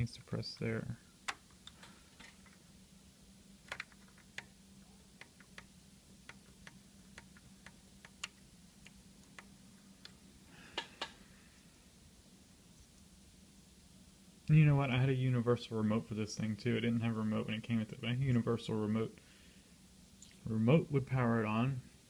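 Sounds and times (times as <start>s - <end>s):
faint low hum: 0.0s - 22.0s
plastic parts clicking: 3.6s - 4.5s.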